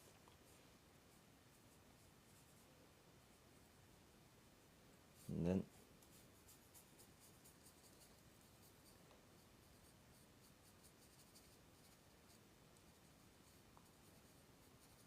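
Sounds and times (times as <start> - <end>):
paintbrush strokes scratching: 0.0 - 2.7, 5.1 - 15.0.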